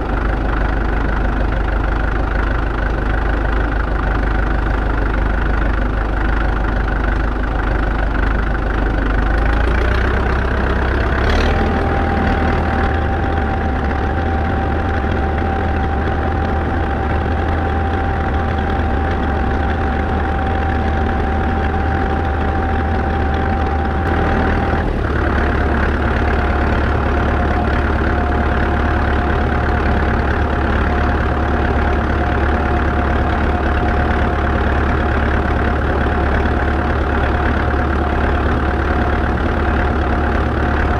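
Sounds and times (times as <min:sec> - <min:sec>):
tractor diesel engine running: 0:00.0 - 0:40.9
high whine: 0:09.3 - 0:40.9.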